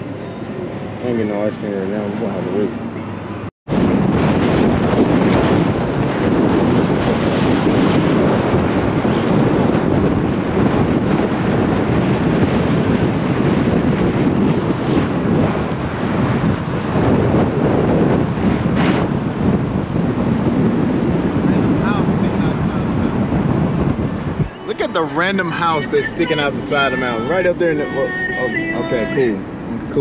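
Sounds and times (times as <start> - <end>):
road noise: 0.0 - 30.0
wind rushing over microphone: 0.0 - 30.0.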